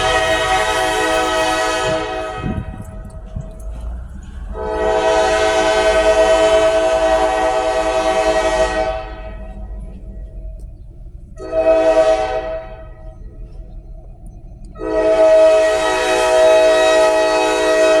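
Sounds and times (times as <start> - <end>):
locomotive air horn blasts: 0.0 - 3.6, 4.4 - 9.6, 11.4 - 13.1, 14.7 - 18.0
low rumble of train: 0.0 - 18.0.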